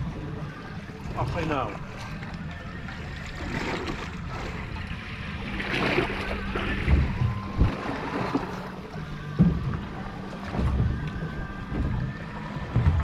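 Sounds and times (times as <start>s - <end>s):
water sloshing against boat hull: 0.0s - 13.0s
wind on microphone: 5.4s - 8.5s
dull thumps: 9.2s - 13.0s.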